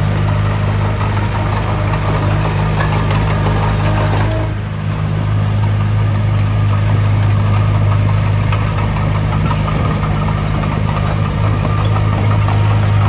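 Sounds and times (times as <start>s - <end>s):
heavy machinery engine humming: 0.0s - 13.0s.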